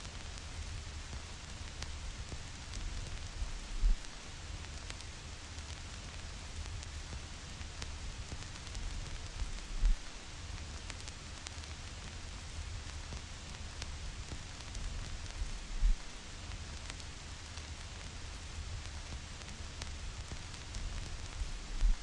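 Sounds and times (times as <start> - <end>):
vinyl record crackle and hiss: 0.0 - 22.0
low thumps: 3.7 - 4.1, 9.6 - 10.1, 15.7 - 16.1
low rumble: 15.4 - 16.1.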